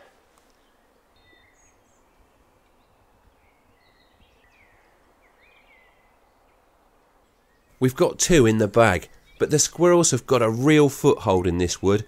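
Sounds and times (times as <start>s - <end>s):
low steady background noise: 0.0s - 12.0s
birds chirping and whistling: 2.8s - 6.2s, 8.7s - 9.9s.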